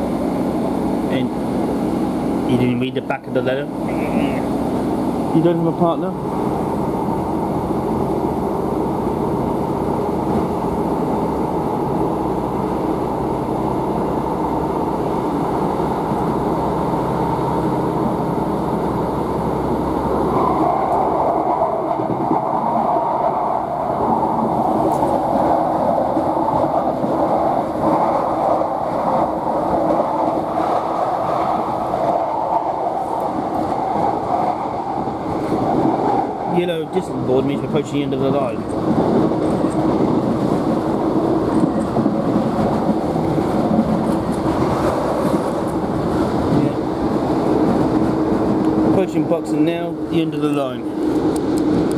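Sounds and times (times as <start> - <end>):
train low drone: 0.0 - 51.9
train rushing rolling noise: 0.0 - 51.9.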